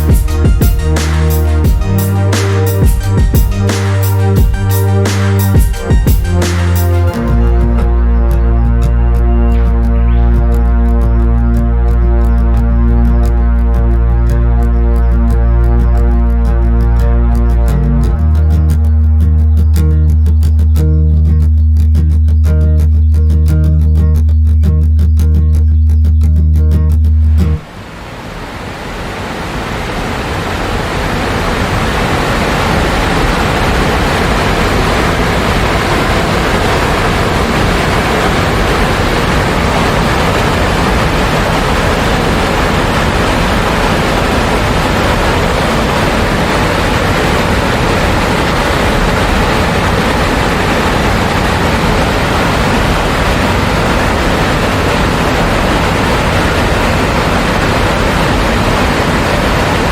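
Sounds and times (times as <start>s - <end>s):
waterfall rushing: 27.6s - 59.9s.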